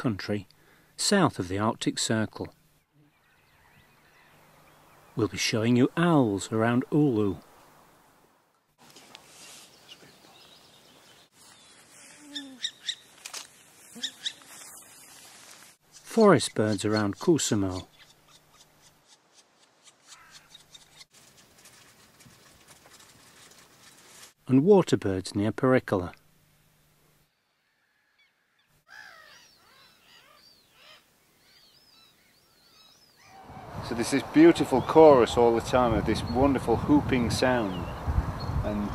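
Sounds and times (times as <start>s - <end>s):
short sharp bird calls: 13.9s - 14.7s, 19.8s - 21.1s.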